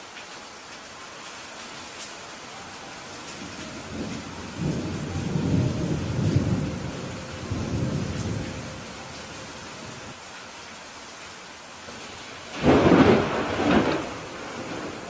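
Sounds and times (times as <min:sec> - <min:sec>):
steady rain: 0:00.0 - 0:15.0
thunder rumbling: 0:03.4 - 0:10.1, 0:12.4 - 0:15.0.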